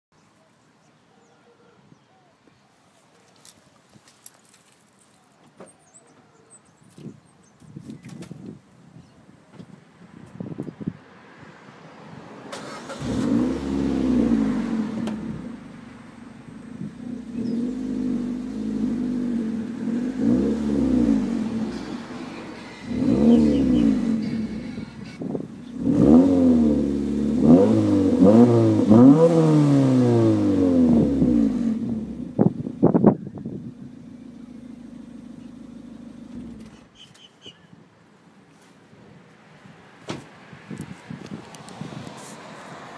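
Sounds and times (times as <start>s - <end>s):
car engine revving: 12.5s - 33.0s.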